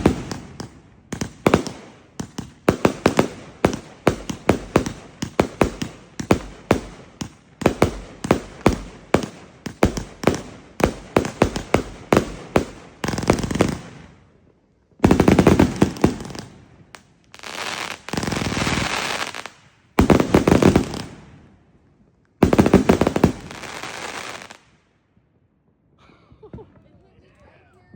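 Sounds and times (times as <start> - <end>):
firework cake shots firing: 0.0 - 13.9
firework crackling: 0.0 - 14.1, 15.0 - 21.4, 22.4 - 24.7.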